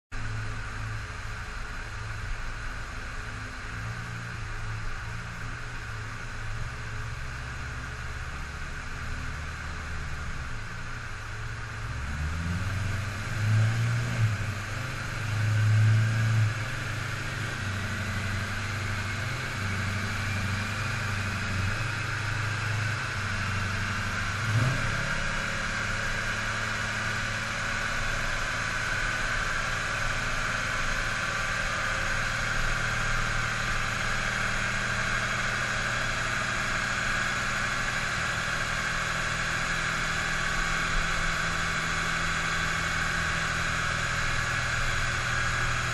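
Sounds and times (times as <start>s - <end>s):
car engine revving and idling: 0.1s - 45.9s.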